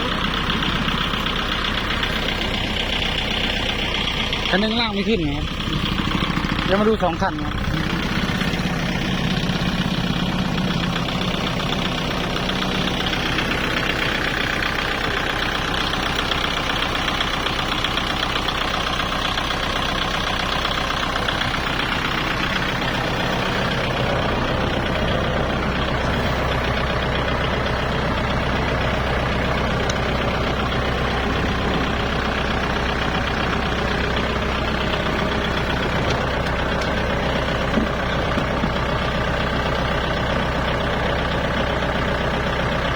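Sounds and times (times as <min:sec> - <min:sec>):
tractor diesel engines running: 0:00.0 - 0:42.9
deep low hum: 0:20.8 - 0:38.9.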